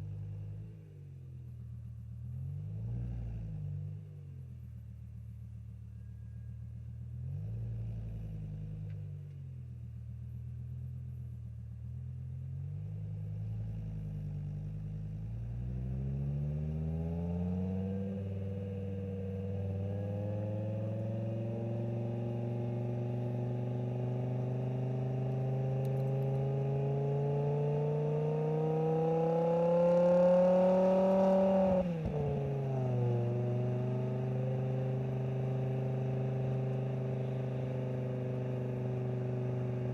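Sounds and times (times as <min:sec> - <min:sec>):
car engine revving: 0:15.6 - 0:39.9.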